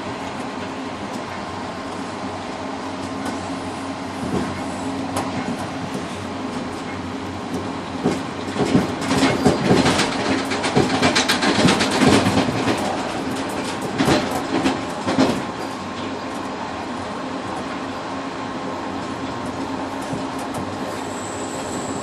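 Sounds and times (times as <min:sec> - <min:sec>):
train rumble and hum: 0:00.0 - 0:22.0
wheels clattering over rails: 0:04.2 - 0:17.9.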